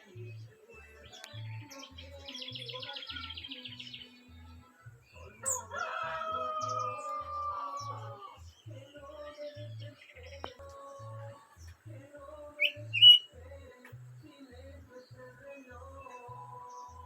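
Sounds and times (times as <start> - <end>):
small birds chirping: 0.0 - 17.0
rooster crowing: 5.2 - 8.4.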